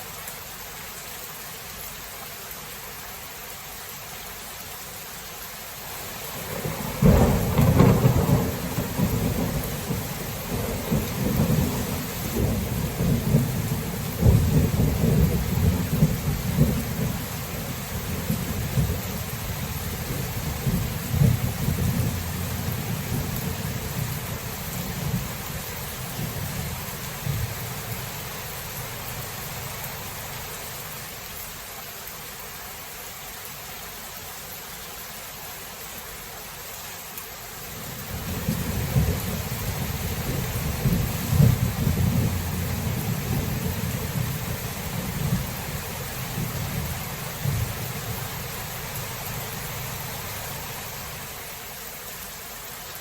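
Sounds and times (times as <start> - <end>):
steady rain: 0.0 - 53.0
thunder rumbling: 6.4 - 30.3, 38.0 - 50.2.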